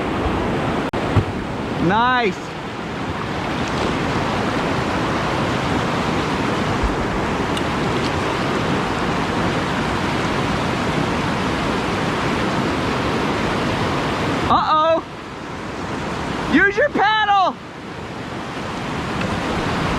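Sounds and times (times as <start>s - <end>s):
whitewater rapid rushing: 0.0s - 19.9s
dull bump: 1.0s - 1.5s.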